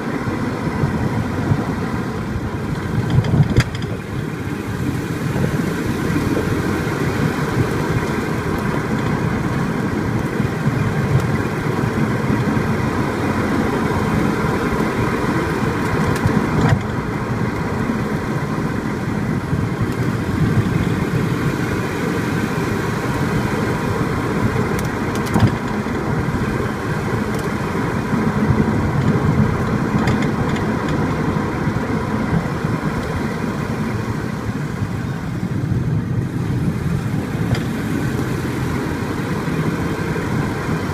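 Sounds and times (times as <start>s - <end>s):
road and engine noise: 0.0s - 40.9s
brake caliper knocking: 2.7s - 4.1s.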